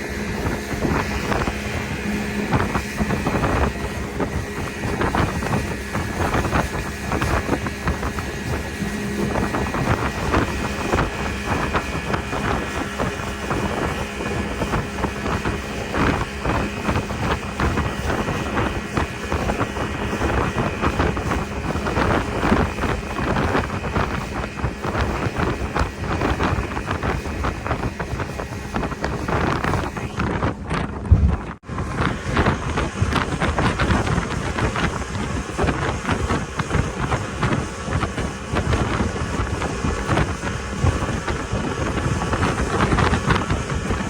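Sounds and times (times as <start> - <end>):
speedboat engine running: 0.0 - 44.0
wind buffeting microphone: 0.0 - 44.0.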